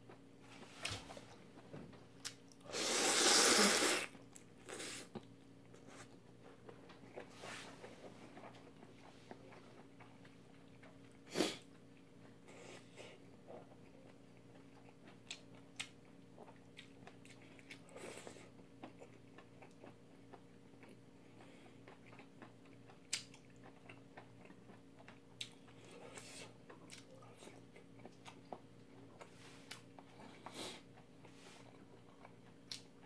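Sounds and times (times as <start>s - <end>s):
faint steady hum: 0.0s - 33.0s
slurping: 2.6s - 5.1s
chewing noodles: 4.0s - 33.0s.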